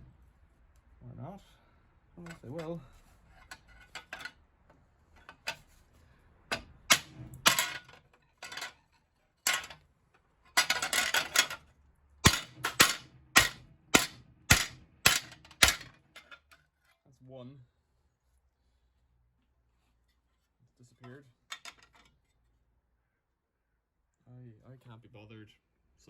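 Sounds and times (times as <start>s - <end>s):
sharp metal strikes: 12.2s - 15.9s
sharp knocks on metal: 12.2s - 16.0s.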